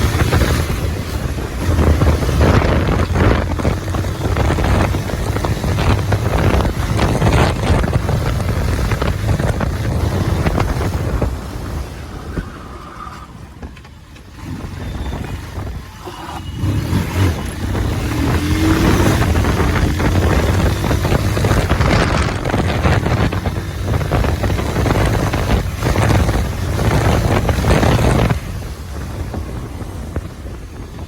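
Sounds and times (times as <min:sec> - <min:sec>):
motorcycle engine running: 0:00.0 - 0:12.3, 0:13.4 - 0:31.0
wind rushing over microphone: 0:00.0 - 0:31.0.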